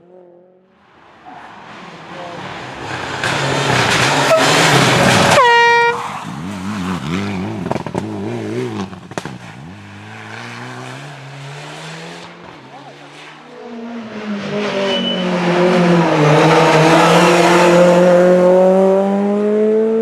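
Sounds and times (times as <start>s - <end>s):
rally car engine at full throttle: 0.0s - 20.0s
air horn blast: 4.3s - 6.1s.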